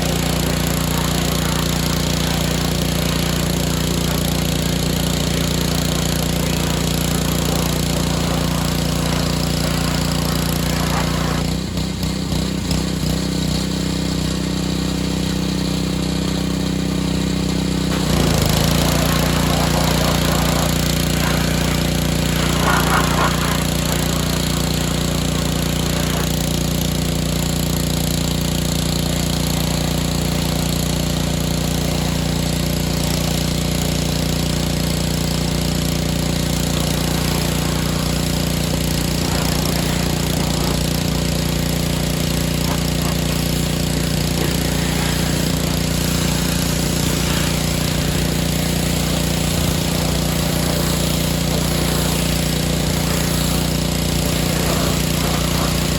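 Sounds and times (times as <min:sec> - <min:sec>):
small engine drone: 0:00.0 - 0:55.9
water spray hissing: 0:00.0 - 0:55.9.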